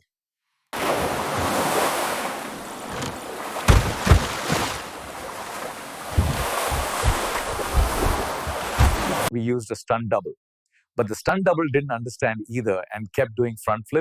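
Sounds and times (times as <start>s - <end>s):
low thumps of wind buffeting: 0.8s - 9.3s
waves washing: 0.8s - 9.3s
wind rushing over microphone: 4.0s - 9.3s.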